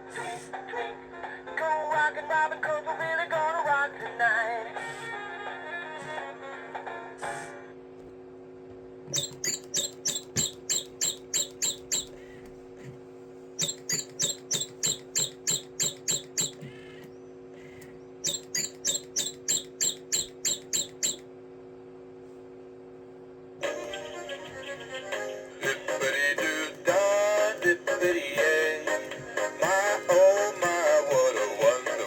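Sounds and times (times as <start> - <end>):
toy bird chirping electronically: 9.1 - 12.2, 13.6 - 16.7, 18.2 - 21.2.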